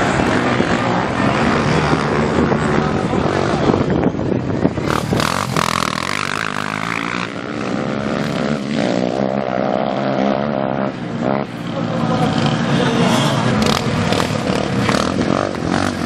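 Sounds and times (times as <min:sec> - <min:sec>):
small race engines revving: 0:04.7 - 0:16.0.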